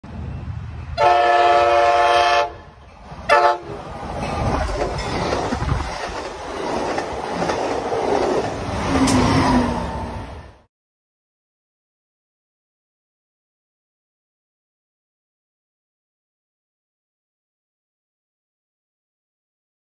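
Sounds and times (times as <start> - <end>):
train horn blasts: 1.0 - 3.8
train cars rumbling and clattering: 2.6 - 10.6.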